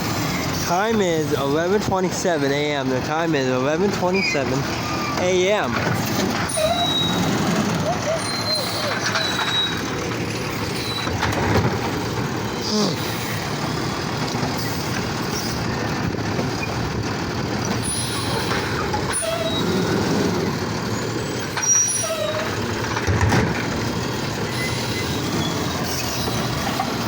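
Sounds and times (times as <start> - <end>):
garbage truck running: 0.0 - 27.0
brief squeaks: 6.5 - 7.3, 8.1 - 9.9.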